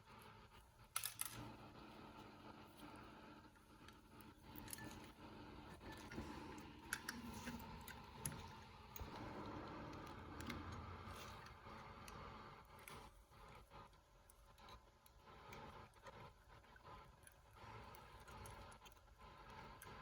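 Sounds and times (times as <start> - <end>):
small metal parts clicking: 1.0 - 1.4.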